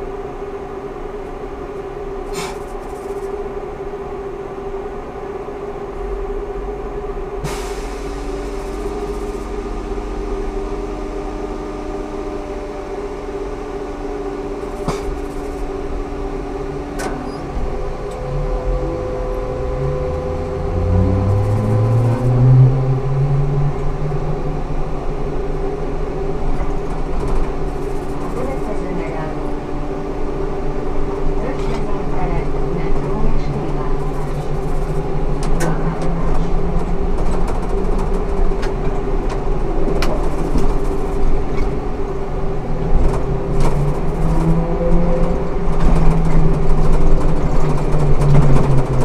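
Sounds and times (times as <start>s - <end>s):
electrical whine tones: 0.0s - 35.8s
motor whine rising in pitch: 8.3s - 24.9s.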